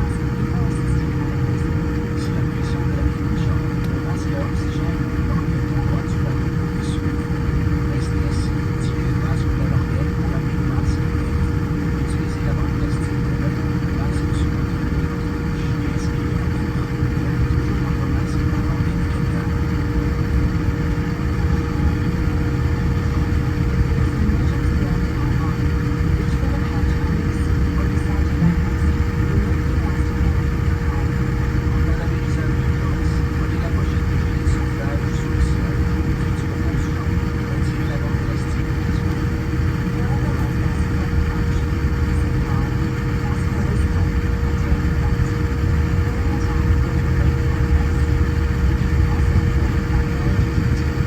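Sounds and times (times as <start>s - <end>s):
aircraft cabin rumble: 0.0s - 51.0s.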